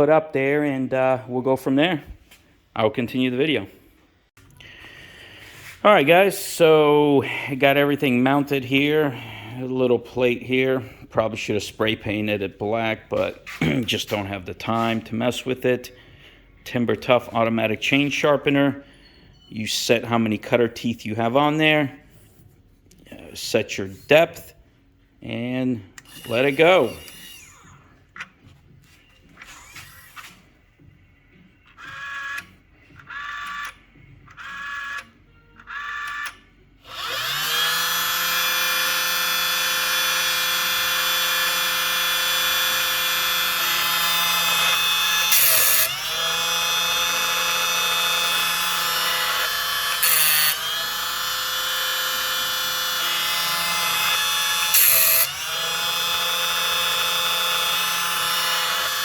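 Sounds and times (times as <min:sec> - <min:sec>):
sharpener motor whining: 0:26.0 - 0:28.3, 0:31.7 - 0:59.0.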